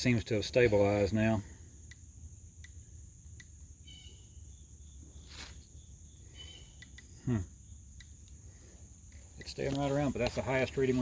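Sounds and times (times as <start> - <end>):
insects chirring: 0.0 - 11.0
faint clicks: 6.8 - 7.1, 8.0 - 8.4.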